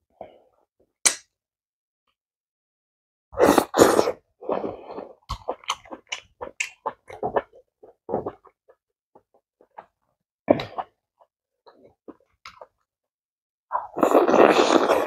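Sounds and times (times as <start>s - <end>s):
wet chewing: 5.3s - 9.9s.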